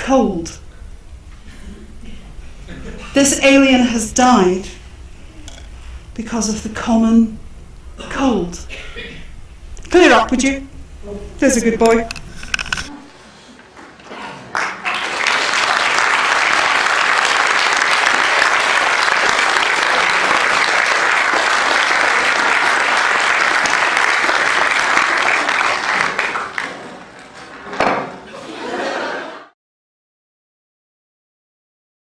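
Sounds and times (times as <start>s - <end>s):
audience applauding: 14.4s - 27.5s.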